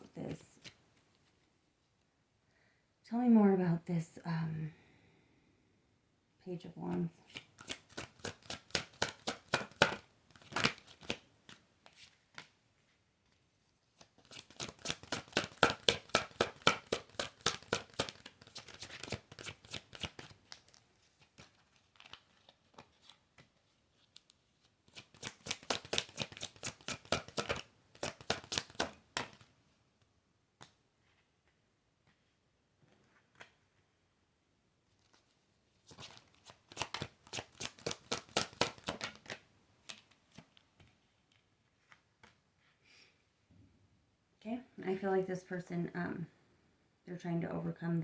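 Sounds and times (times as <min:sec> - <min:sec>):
cards being shuffled: 0:07.2 - 0:29.5, 0:34.9 - 0:42.4.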